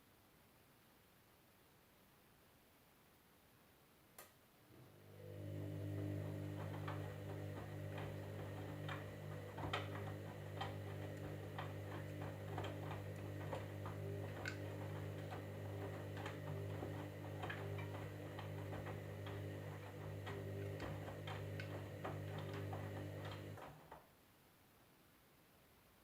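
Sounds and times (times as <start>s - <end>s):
washing machine humming: 4.7s - 24.0s.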